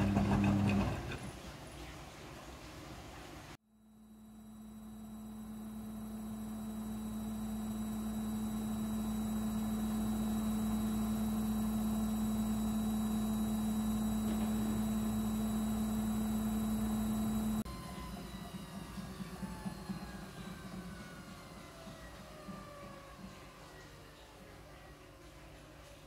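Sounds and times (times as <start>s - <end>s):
washing machine humming: 0.0s - 1.6s, 3.3s - 24.4s.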